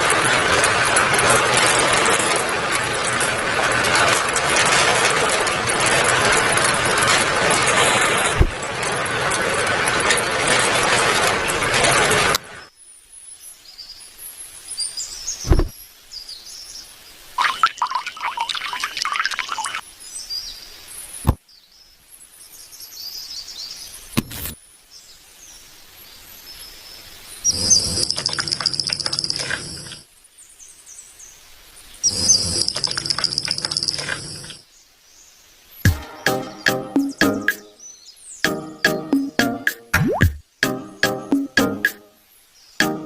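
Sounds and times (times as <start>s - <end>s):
loud rattling: 0.0s - 12.4s
birds chirping and calling: 27.4s - 29.8s, 32.0s - 34.5s.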